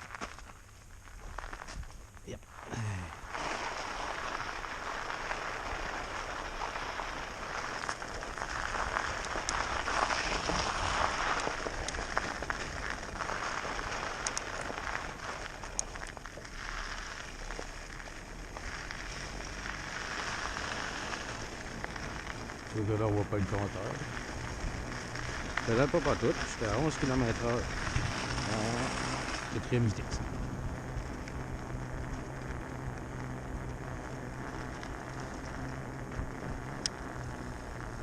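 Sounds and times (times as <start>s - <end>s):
fat tyres rolling hiss: 0.0s - 38.0s
low rumble: 0.0s - 38.0s
scattered clicks: 14.2s - 14.6s.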